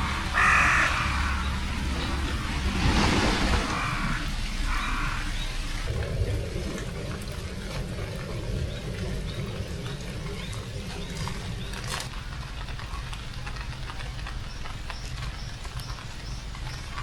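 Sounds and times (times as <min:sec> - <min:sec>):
crow cawing: 0:00.0 - 0:01.8, 0:03.6 - 0:05.4
rain: 0:00.0 - 0:17.0.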